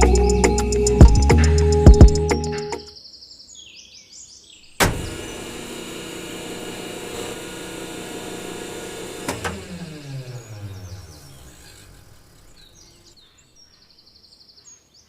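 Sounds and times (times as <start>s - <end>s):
small electric motor running: 5.0s - 13.1s.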